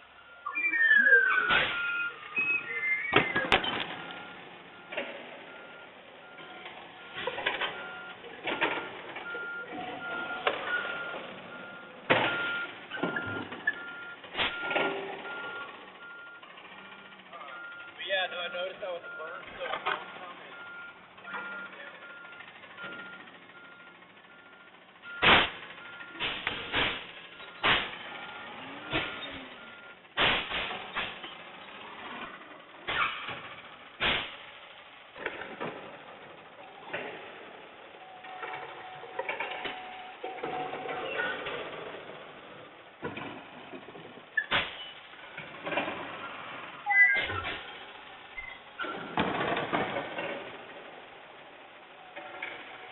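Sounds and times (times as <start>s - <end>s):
garbage truck running: 0.0s - 52.9s
reversing alarm beeping: 0.2s - 19.4s, 20.0s - 26.2s, 27.3s - 30.0s
metallic clanks and bangs: 25.2s - 28.2s, 30.2s - 31.4s, 32.9s - 34.5s
faint repeating beep: 46.9s - 47.4s.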